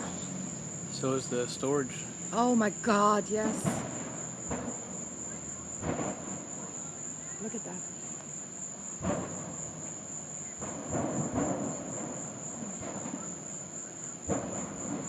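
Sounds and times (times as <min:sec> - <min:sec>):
crickets trilling: 0:00.0 - 0:15.0
sudden thumps: 0:02.4 - 0:06.7, 0:09.0 - 0:13.4, 0:14.2 - 0:15.0.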